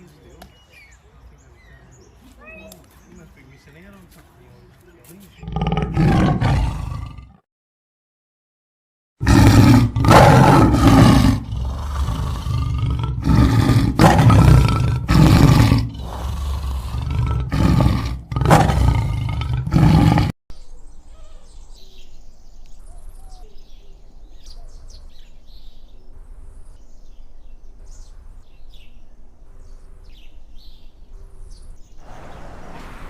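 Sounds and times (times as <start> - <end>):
large animal roaring: 5.4 - 7.4, 9.2 - 20.4.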